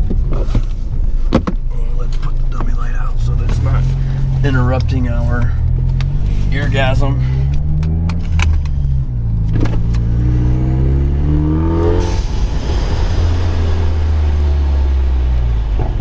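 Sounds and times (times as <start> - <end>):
car exhaust accelerating: 0.0 - 16.0.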